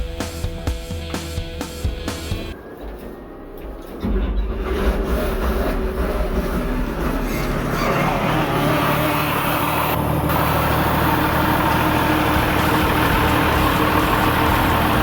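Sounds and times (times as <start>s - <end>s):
diesel engine running steadily: 4.4s - 15.0s.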